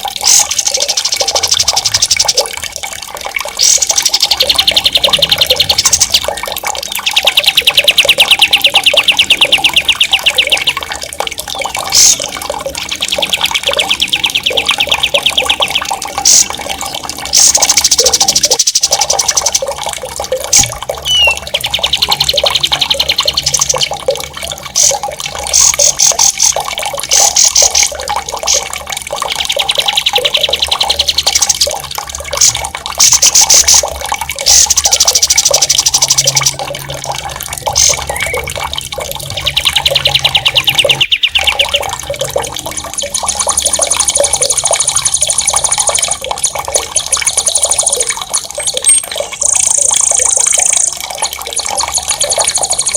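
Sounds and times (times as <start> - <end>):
running water: 0.0 - 52.9
songbird trilling: 3.6 - 10.9, 11.9 - 19.6, 21.0 - 23.8, 37.7 - 38.6, 39.2 - 41.9.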